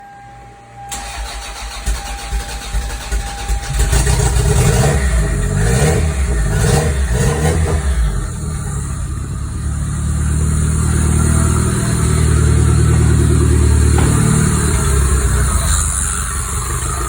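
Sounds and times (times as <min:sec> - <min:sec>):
car engine cranking on starter: 0:00.9 - 0:09.3, 0:12.8 - 0:17.0
car engine revving: 0:00.9 - 0:17.0.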